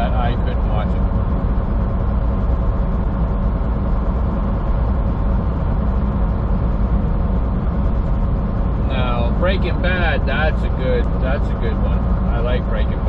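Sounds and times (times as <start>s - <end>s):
road rumble: 0.0s - 13.0s
truck engine drone: 0.0s - 13.0s.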